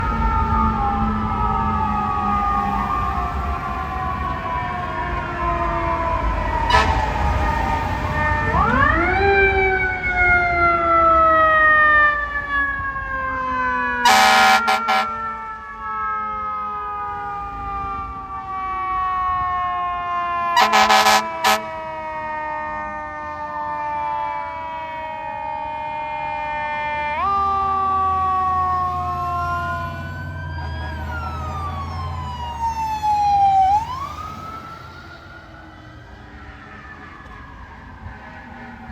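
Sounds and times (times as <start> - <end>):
fire truck sirens wailing: 0.0 - 38.9
air horn blasts: 6.7 - 7.1, 14.0 - 15.3, 20.6 - 21.8
heavy truck engine rumbling: 27.6 - 38.9.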